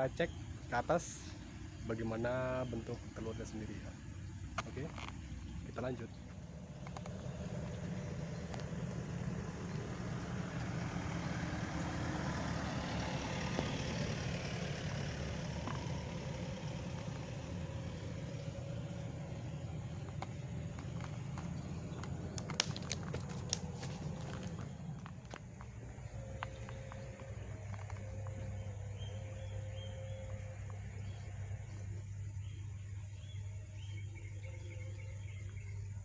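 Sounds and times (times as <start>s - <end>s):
low rumble: 13.1s - 34.5s.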